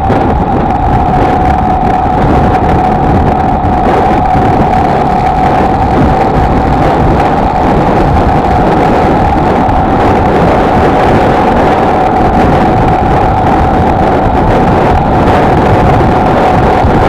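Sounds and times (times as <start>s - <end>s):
motorcycle engine cruising: 0.0s - 17.0s
wind rushing over microphone: 0.0s - 17.0s.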